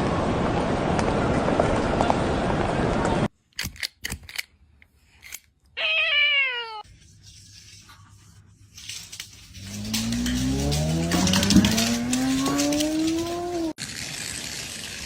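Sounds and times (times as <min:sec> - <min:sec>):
cat meowing: 0:05.8 - 0:06.8.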